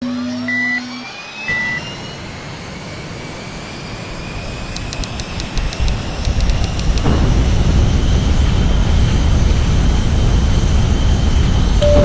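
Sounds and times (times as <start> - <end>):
jet engines spooling up: 0.0 - 12.0
light ticks: 4.8 - 7.1.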